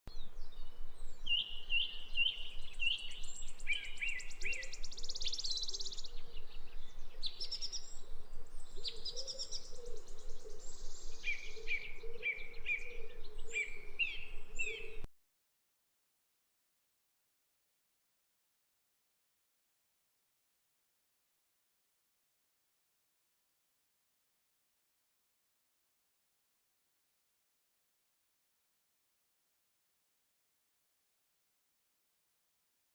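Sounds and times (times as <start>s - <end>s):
songbird chirps and trills: 0.1s - 15.1s.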